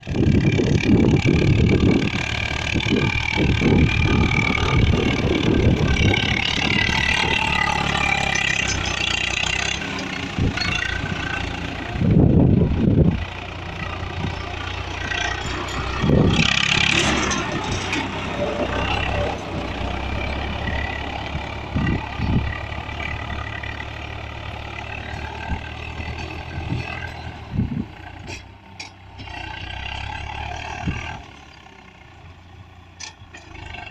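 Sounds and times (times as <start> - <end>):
tractor engine running: 0.0 - 33.9
wind gusts on microphone: 0.1 - 7.4, 11.8 - 14.6, 15.8 - 16.6, 21.0 - 23.4, 26.4 - 28.3.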